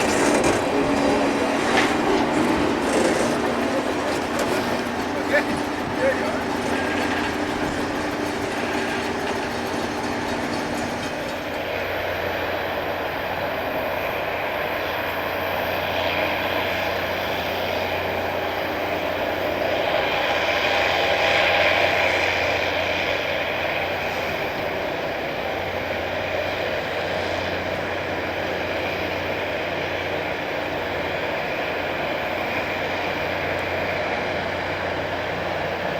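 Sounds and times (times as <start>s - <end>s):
grinding stones on rail: 0.0s - 12.8s
diesel engine hum: 0.0s - 35.9s.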